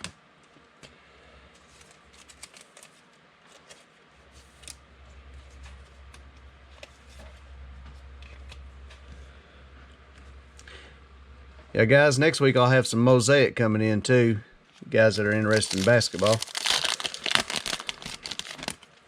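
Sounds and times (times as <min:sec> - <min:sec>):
low steady hum: 0:00.0 - 0:19.0
cards being flipped through: 0:01.8 - 0:04.8, 0:15.3 - 0:18.8.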